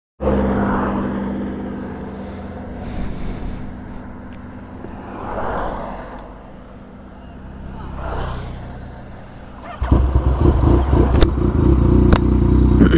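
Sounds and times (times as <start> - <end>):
motorcycle engine running: 7.2 - 12.9.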